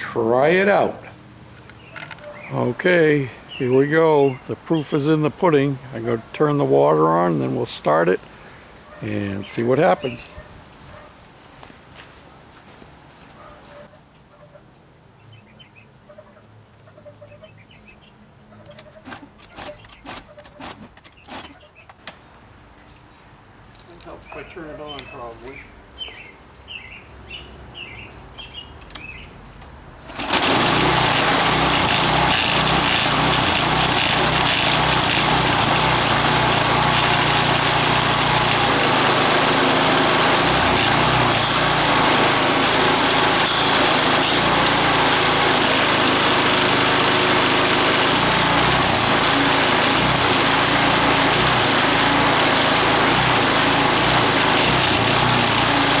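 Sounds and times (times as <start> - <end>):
pressure washer engine running: 30.1 - 56.0.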